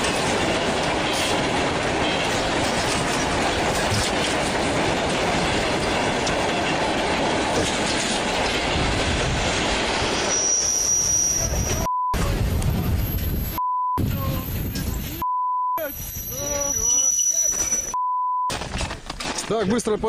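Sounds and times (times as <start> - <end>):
train wheels on rails: 0.0 - 15.2
wheel squeal: 10.2 - 11.9, 16.0 - 18.0
short beep: 15.2 - 18.5.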